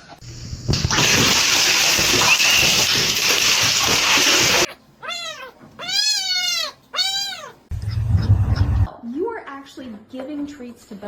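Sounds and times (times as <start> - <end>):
cat meowing: 5.0 - 7.7.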